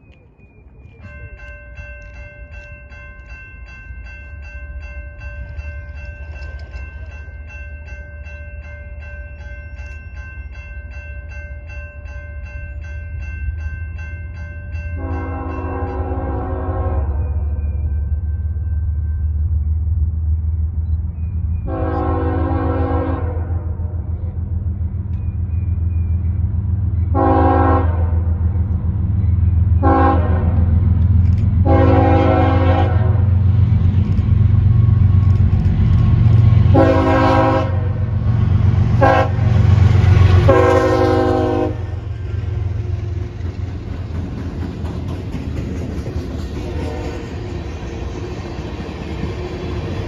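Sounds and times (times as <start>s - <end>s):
locomotive air horn blasts: 15.0s - 17.3s, 21.7s - 23.9s, 27.1s - 28.2s, 29.8s - 30.7s, 31.6s - 33.3s, 36.7s - 38.0s, 39.0s - 39.6s, 40.4s - 42.0s.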